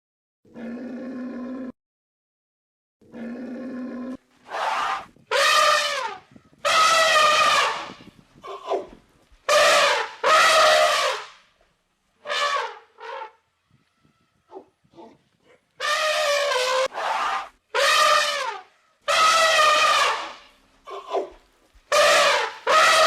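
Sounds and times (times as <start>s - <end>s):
loud pitched animal calls: 15.8s - 21.1s, 21.9s - 23.0s.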